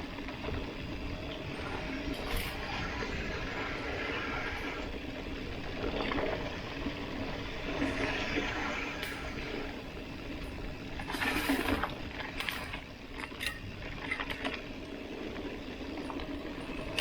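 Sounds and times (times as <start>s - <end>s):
bike tyre and wind noise: 0.0s - 17.0s
sharp clicks and rattles: 10.9s - 15.4s.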